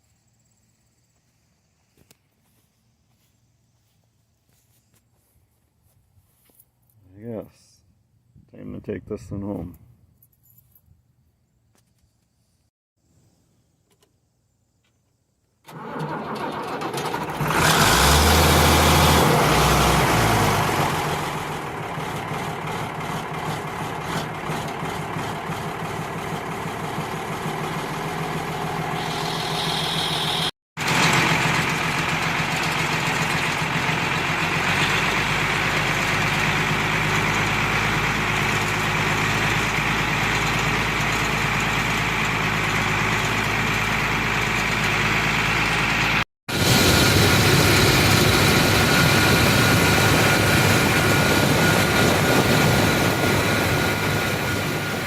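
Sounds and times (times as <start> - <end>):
engine starting and running: 15.6 - 55.0.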